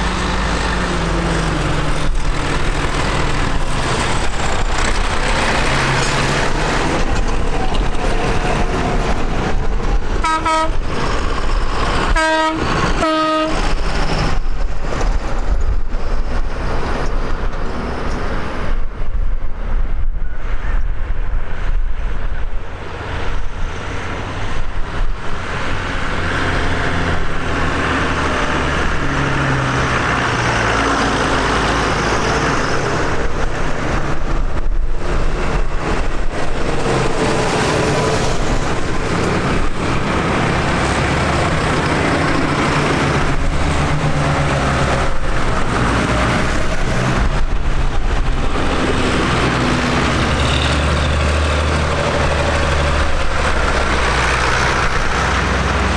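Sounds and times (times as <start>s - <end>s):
tractor engines running: 0.0s - 18.8s, 22.6s - 55.9s
short horn toots: 12.2s - 13.7s.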